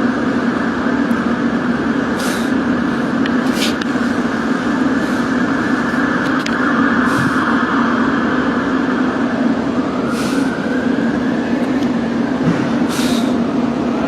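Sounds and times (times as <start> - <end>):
train equipment humming: 0.0 - 14.0
air hissing: 2.2 - 6.1, 10.0 - 10.6, 12.8 - 13.5.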